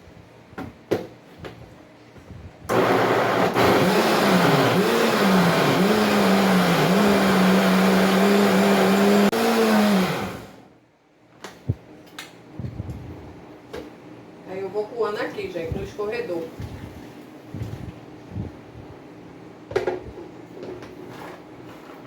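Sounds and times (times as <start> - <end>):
electric blender grinding: 2.7 - 10.6.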